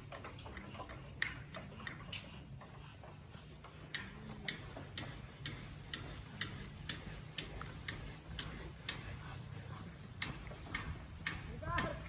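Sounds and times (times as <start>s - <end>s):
faint regular clicking: 3.6s - 11.9s.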